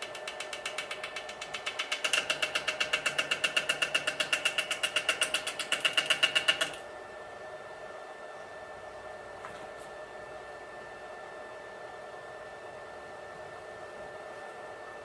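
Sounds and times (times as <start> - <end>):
lathe cutter tapping on wood: 0.0 - 6.8
lathe running hum: 0.0 - 8.0.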